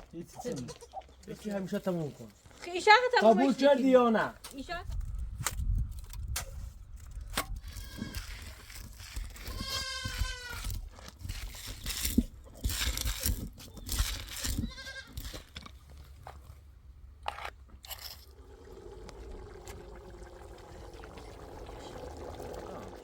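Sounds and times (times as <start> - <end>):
livestock bleating: 0.4 - 1.0, 9.5 - 10.6, 14.5 - 15.2.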